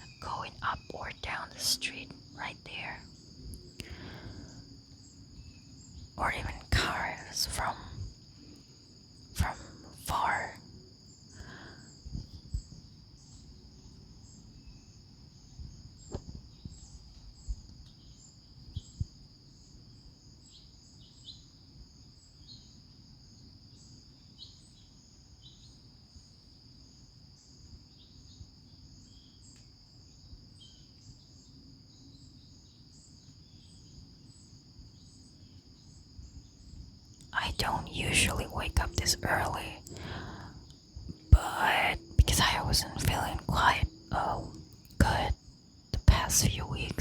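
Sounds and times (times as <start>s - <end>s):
insects trilling and chirping: 0.0s - 47.0s
low background rumble: 37.3s - 45.4s.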